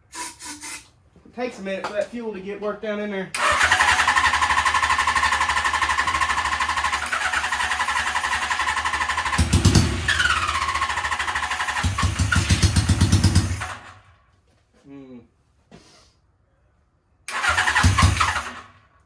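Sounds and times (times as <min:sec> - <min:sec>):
motorcycle engine running: 0:03.4 - 0:13.7.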